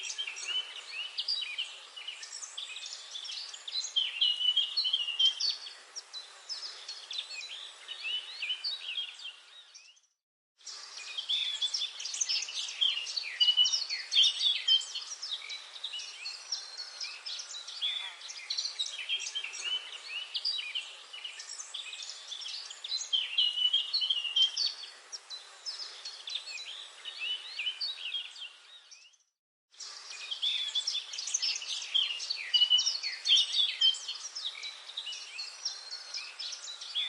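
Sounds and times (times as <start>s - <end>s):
chorus of birds chirping: 0.0s - 37.0s
faint hiss: 10.6s - 28.8s, 29.8s - 37.0s.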